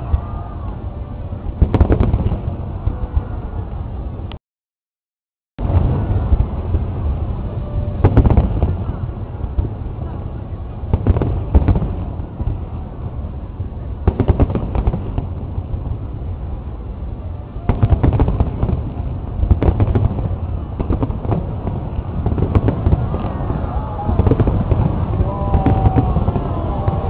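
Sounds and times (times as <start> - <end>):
fireworks bangs: 0.0 - 4.3, 5.6 - 27.0
low rumble: 5.6 - 27.0.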